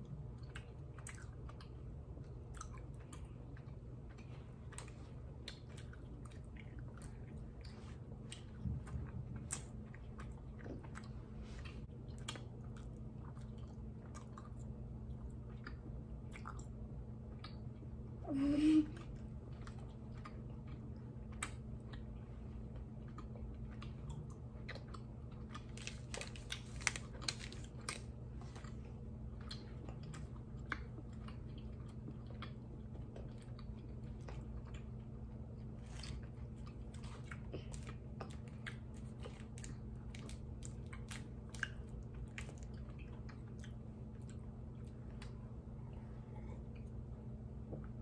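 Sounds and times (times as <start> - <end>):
steady low hum: 0.0 - 48.0
candy chewing crunches: 19.0 - 45.4.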